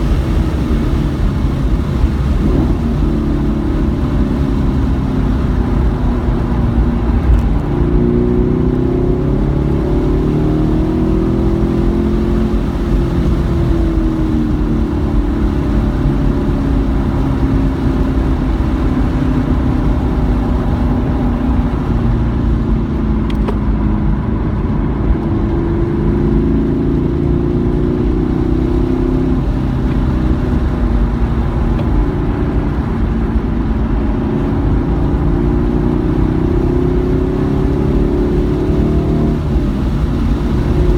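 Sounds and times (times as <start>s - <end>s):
car engine revving: 0.0s - 40.9s
wet road and wind noise: 0.0s - 40.9s.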